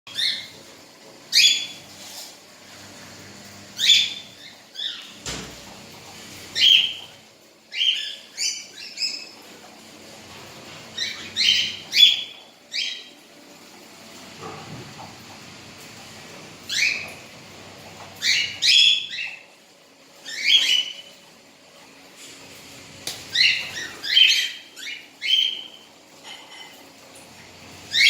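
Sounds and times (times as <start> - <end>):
parakeet chirping: 3.8 - 5.2, 7.7 - 9.4, 11.0 - 13.1, 23.3 - 25.8.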